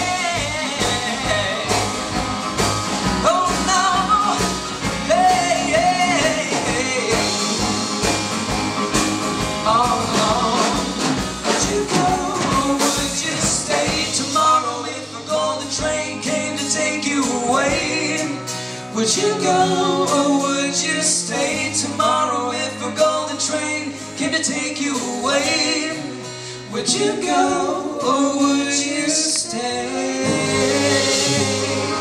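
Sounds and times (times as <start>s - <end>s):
steady drum beat: 0.0s - 18.5s, 29.8s - 32.0s
live band playing: 0.0s - 32.0s.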